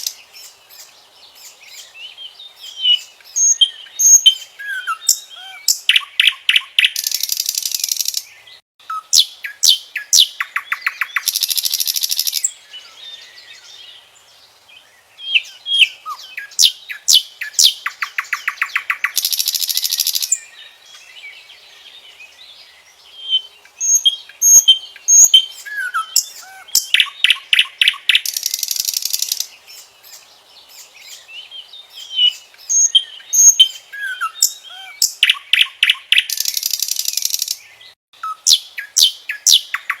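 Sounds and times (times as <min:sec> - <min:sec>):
faint bird chirps: 0:00.0 - 0:40.0
nightingale singing: 0:00.0 - 0:40.0.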